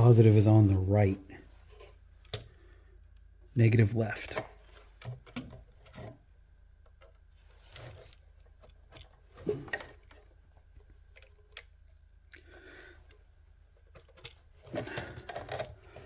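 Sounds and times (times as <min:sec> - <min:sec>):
soft rustle: 0:07.3 - 0:11.0.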